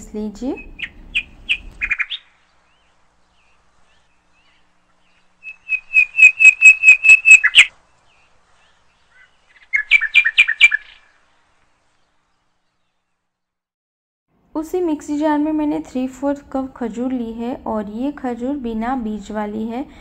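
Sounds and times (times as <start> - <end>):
bird chirping: 0.4 - 13.3.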